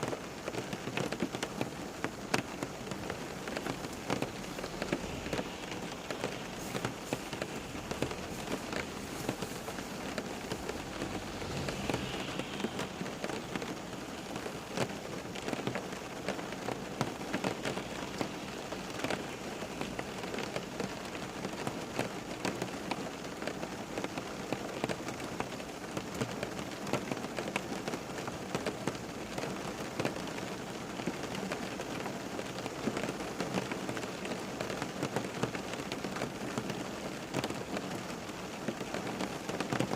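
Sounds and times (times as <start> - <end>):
raindrops tapping: 0.0 - 30.2
steady rain falling: 0.0 - 39.9.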